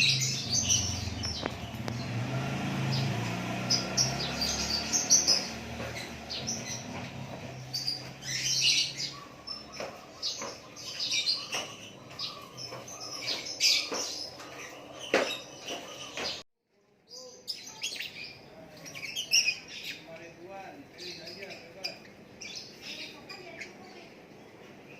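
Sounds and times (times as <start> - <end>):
songbird chirping and singing: 0.0 - 24.9.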